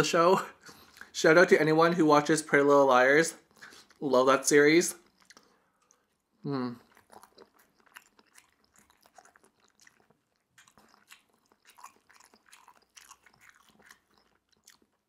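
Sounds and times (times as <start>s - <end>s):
chewing with mouth clicks: 0.6s - 1.2s, 3.4s - 4.1s, 4.9s - 15.0s.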